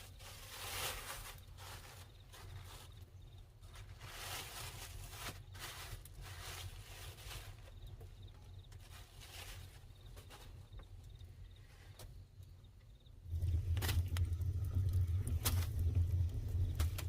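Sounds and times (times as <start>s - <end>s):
rustling and scraping: 0.0s - 12.2s, 13.3s - 17.0s
faint insect chirping: 0.0s - 17.0s.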